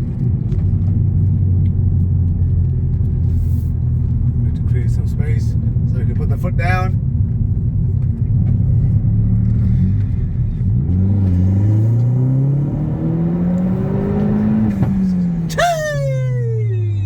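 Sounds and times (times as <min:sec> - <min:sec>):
car engine accelerating: 0:00.0 - 0:17.0
exhaust pop: 0:13.6 - 0:15.6.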